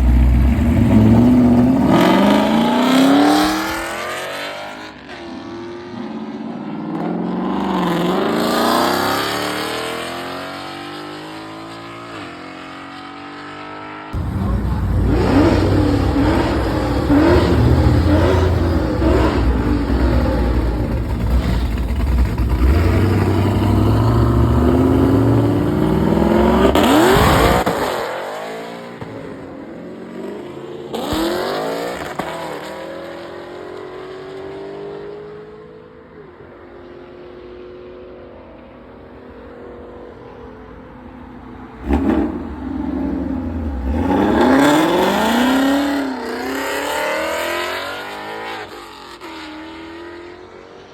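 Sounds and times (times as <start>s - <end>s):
quieter car engine: 0.0s - 4.0s, 14.1s - 27.8s, 35.0s - 50.9s
car engine revving hard: 0.0s - 4.8s, 14.2s - 29.4s, 41.8s - 50.6s
loud engine blast: 14.2s - 28.0s, 41.8s - 48.3s.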